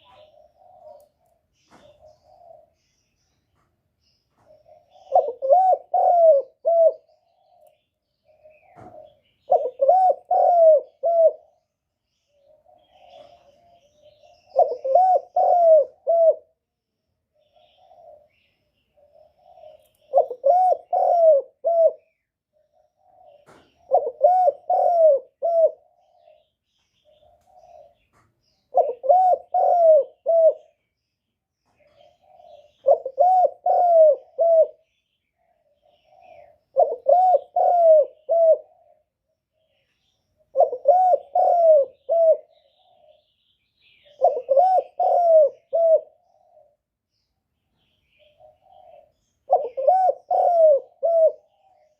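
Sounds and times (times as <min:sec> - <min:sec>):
dove cooing: 0:00.0 - 0:02.9, 0:04.3 - 0:16.6, 0:17.3 - 0:30.8, 0:31.7 - 0:46.8, 0:47.8 - 0:51.9.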